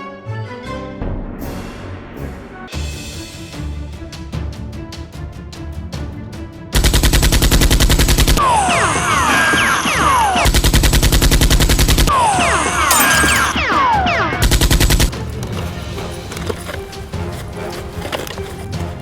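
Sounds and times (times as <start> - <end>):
background music: 0.0 - 6.8, 13.6 - 19.0.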